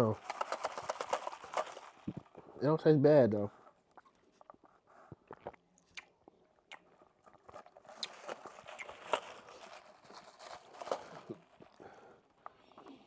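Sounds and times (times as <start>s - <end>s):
crackly chewing: 0.0s - 2.6s, 3.6s - 13.0s
mouth clicks: 4.0s - 9.2s.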